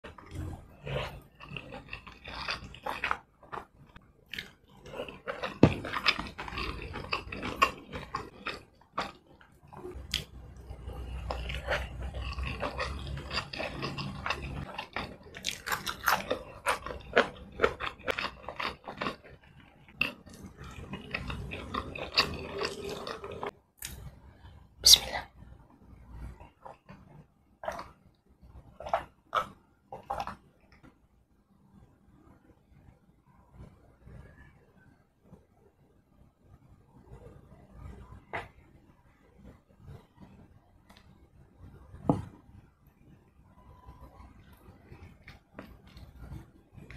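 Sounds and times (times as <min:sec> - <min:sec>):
wet chewing and mouth clicks: 0:00.0 - 0:24.1, 0:26.1 - 0:31.0, 0:43.6 - 0:46.9.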